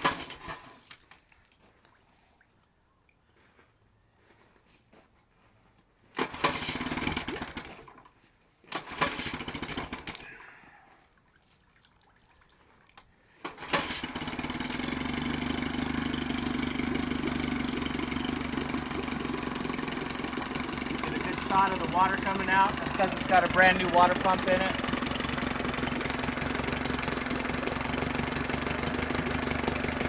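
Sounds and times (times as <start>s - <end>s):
outboard motor starting and running: 0.0s - 0.8s, 6.2s - 8.1s, 8.7s - 10.6s, 13.4s - 30.0s.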